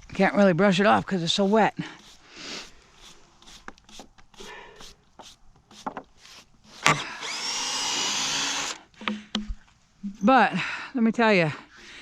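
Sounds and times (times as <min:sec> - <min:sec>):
hand brushing sawdust off board: 0:00.8 - 0:07.0.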